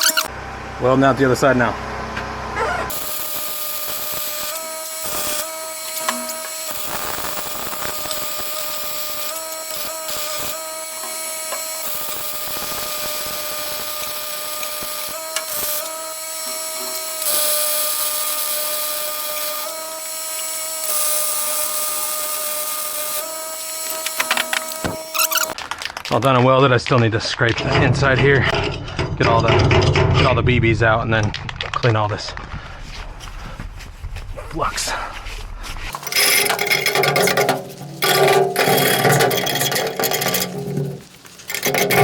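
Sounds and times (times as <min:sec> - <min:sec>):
welding arc crackling sizzle: 0:00.0 - 0:00.3, 0:02.9 - 0:26.1, 0:35.9 - 0:42.0
steady welder tone: 0:00.0 - 0:00.4, 0:02.8 - 0:25.6, 0:35.9 - 0:42.0.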